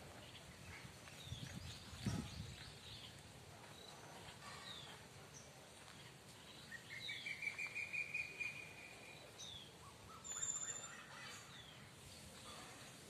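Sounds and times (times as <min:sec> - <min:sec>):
pulsing bird trill: 0:10.2 - 0:11.4.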